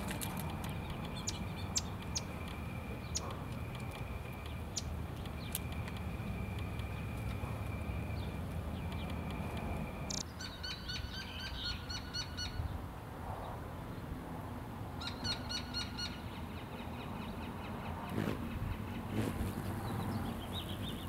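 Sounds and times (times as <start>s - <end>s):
low outdoor rumble: 0.0s - 10.3s
bird calling in repeated notes: 0.4s - 12.6s, 15.0s - 21.0s.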